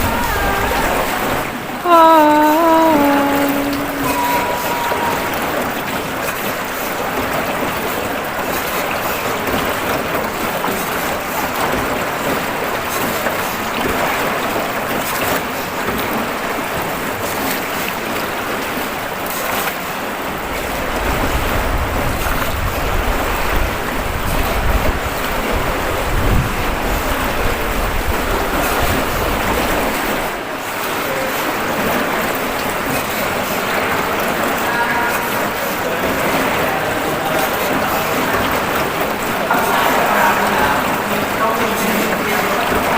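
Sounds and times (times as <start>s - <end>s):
wind: 0.0s - 1.9s, 2.6s - 42.9s
water washing: 0.0s - 42.9s
wind buffeting microphone: 20.8s - 30.3s.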